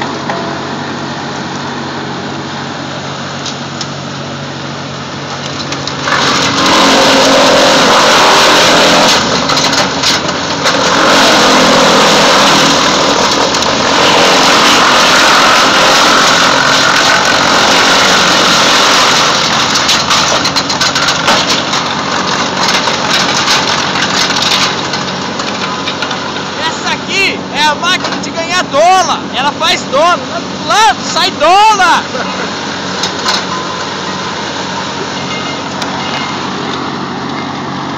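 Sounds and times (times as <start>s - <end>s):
wood chipper shredding: 0.0s - 37.9s.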